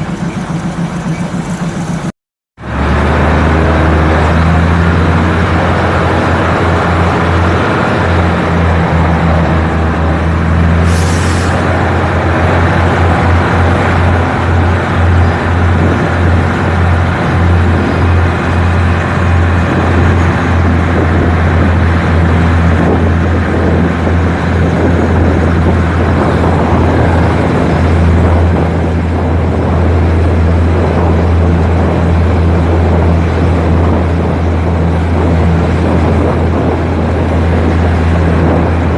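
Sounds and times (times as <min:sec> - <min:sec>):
vehicle running drone: 0:00.0 - 0:38.9
short hiss: 0:10.9 - 0:11.6.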